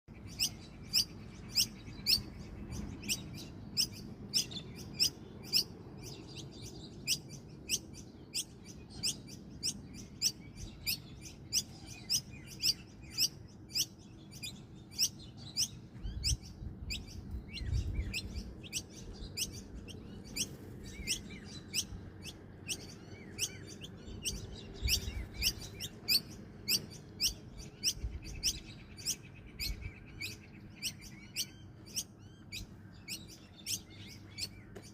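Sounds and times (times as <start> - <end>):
bird chirping: 0.1 - 34.9.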